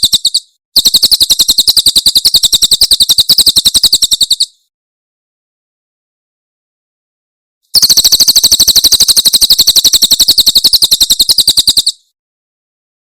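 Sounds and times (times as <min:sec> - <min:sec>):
bird rapid-fire song: 0:00.0 - 0:04.7, 0:07.7 - 0:12.2.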